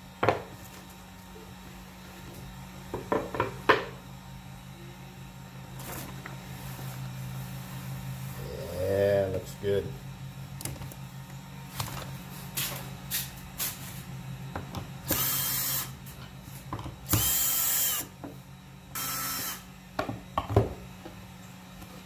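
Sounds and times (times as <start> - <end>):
power tool motor bursts: 15.0 - 16.0, 17.1 - 18.1, 18.9 - 19.7.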